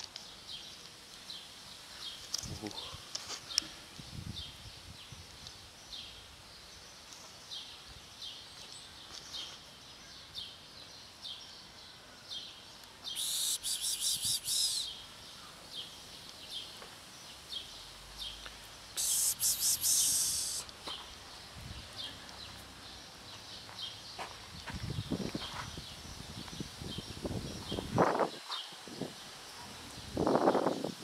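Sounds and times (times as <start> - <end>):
small birds chirping: 0.0 - 31.0
pulsing buzzing bird chatter: 13.2 - 14.9, 19.0 - 20.7.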